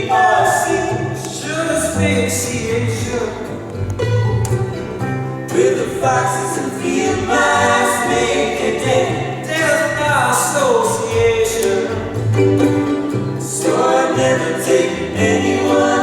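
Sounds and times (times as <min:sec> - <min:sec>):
voices singing in harmony: 0:00.0 - 0:03.7, 0:05.5 - 0:16.0.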